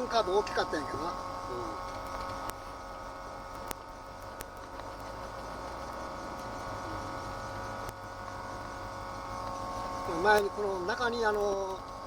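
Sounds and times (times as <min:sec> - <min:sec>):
small clicks: 0:01.8 - 0:02.7, 0:03.5 - 0:06.6.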